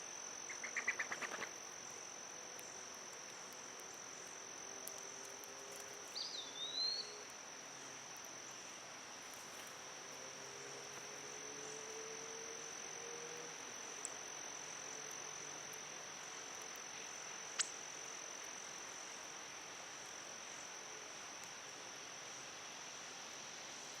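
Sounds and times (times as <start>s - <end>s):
high-pitched insect drone: 0.0s - 24.0s.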